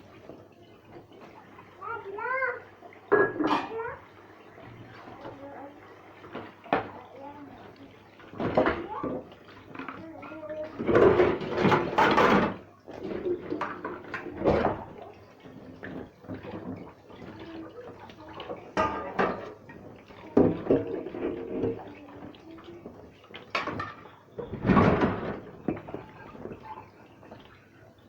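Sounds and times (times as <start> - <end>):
water running from tap: 0.0 - 28.0
dishes clinking: 3.1 - 4.0, 18.4 - 19.6.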